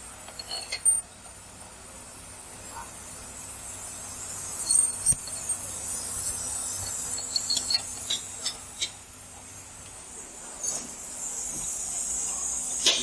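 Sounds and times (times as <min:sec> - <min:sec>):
steady high hiss: 0:00.0 - 0:13.0
metallic clinks of tools: 0:00.3 - 0:01.1, 0:04.6 - 0:08.9.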